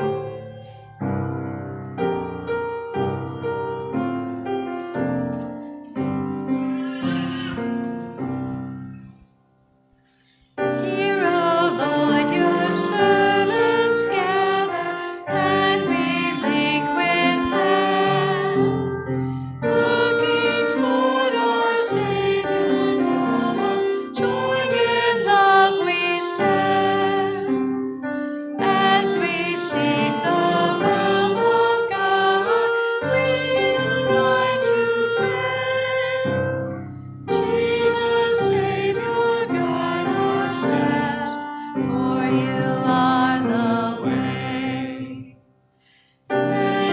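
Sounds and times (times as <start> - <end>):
hymn singing: 0.0 - 9.3, 10.6 - 45.4, 46.3 - 46.9
piano accompaniment: 0.0 - 45.7, 46.3 - 46.9.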